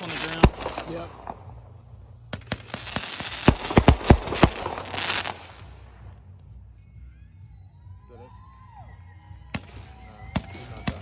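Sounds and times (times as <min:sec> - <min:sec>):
firework hiss: 0:00.0 - 0:01.6, 0:02.4 - 0:06.1
fireworks bangs: 0:00.0 - 0:06.2, 0:09.6 - 0:11.0.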